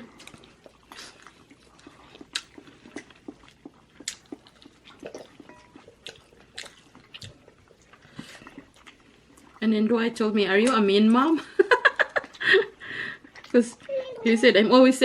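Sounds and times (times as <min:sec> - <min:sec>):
chewing crunchy food: 0:00.0 - 0:14.6.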